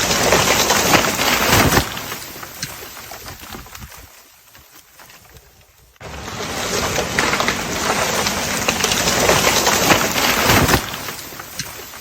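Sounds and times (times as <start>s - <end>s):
tree hitting the ground thud: 0.0s - 2.5s, 6.9s - 11.6s
branches crackling and snapping: 0.0s - 12.0s.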